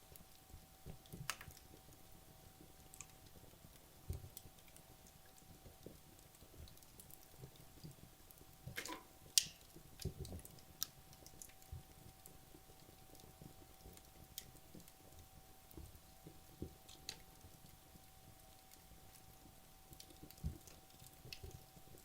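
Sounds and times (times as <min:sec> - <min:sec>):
fire crackling and popping: 0:00.0 - 0:22.0.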